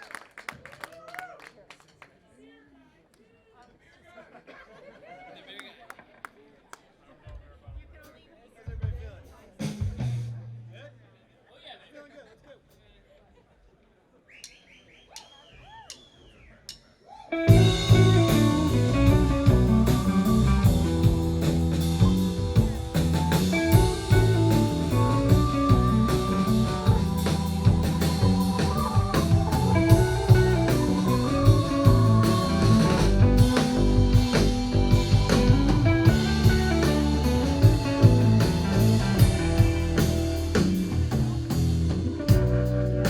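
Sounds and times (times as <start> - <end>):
live rock band playing: 17.4 - 43.0
sliding guitar tones: 17.4 - 43.0.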